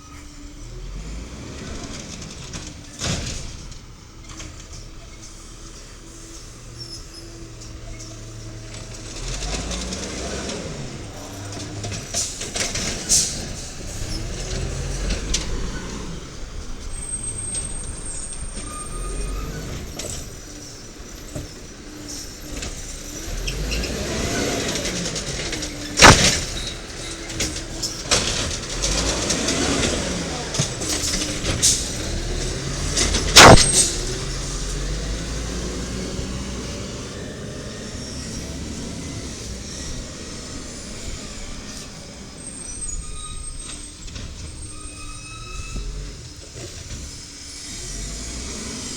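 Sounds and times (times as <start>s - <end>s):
diesel truck engine revving: 0.0s - 48.9s
loud bang: 26.0s - 26.6s, 33.2s - 34.2s.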